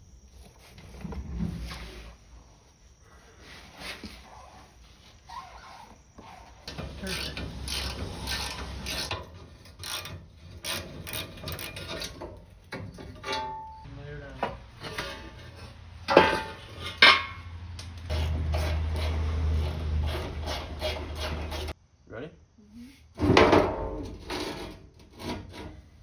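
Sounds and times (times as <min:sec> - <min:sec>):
ratchet wrench clicking: 0:07.0 - 0:12.0.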